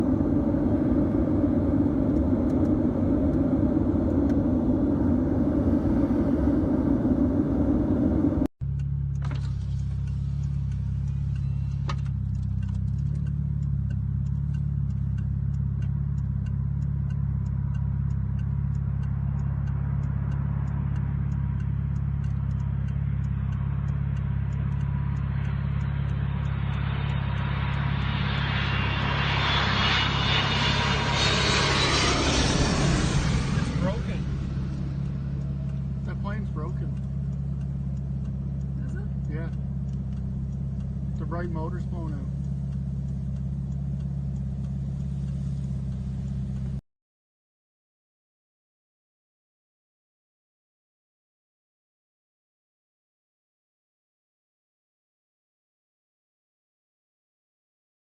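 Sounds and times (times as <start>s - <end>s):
jet engine drone in cabin: 0.0s - 8.5s, 9.2s - 46.8s
faint ticking: 32.3s - 46.8s.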